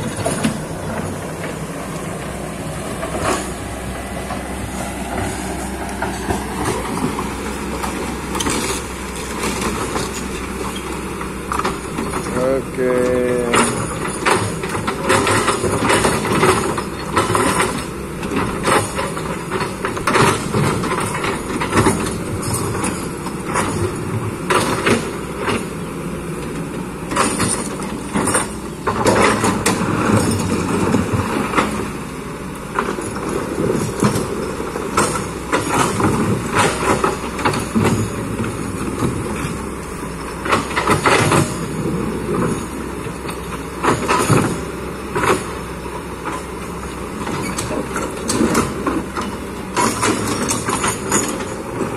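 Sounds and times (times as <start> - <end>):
excavator engine running: 0.0 - 51.9.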